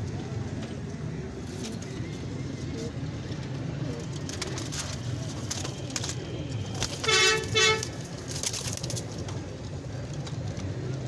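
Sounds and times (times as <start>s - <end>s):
street traffic hum: 0.0s - 11.0s
vehicle horn honking: 7.0s - 8.0s.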